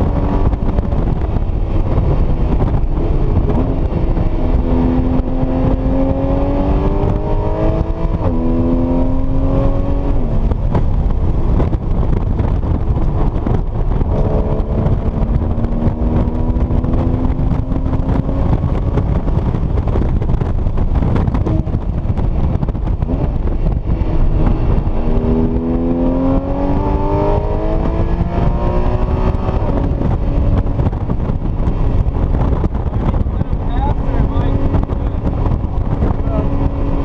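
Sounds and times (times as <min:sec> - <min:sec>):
car engine accelerating: 0:00.0 - 0:37.0
road and wind noise: 0:00.0 - 0:37.0.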